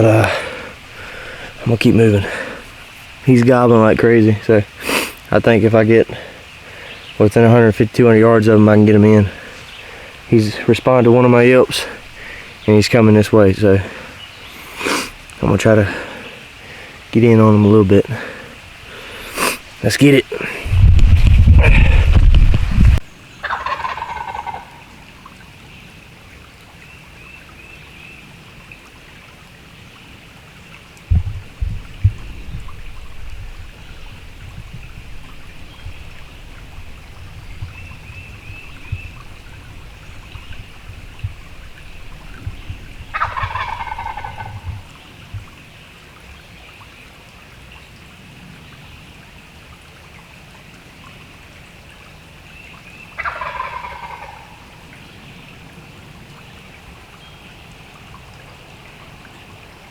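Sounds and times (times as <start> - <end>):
low thumps: 20.7 - 23.0, 31.1 - 45.6
turkey gobbling: 23.4 - 25.0, 31.4 - 45.0, 53.2 - 54.8.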